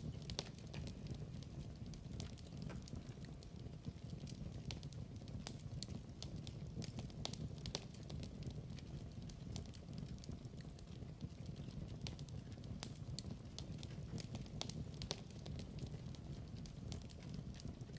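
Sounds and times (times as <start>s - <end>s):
wood fire crackling: 0.0s - 17.9s.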